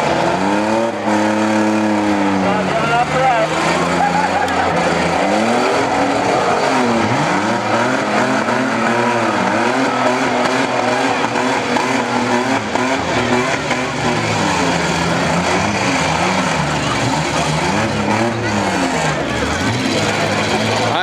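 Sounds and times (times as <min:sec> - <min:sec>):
car engines revving: 0:00.0 - 0:21.0
steady noisy wash: 0:01.0 - 0:17.6.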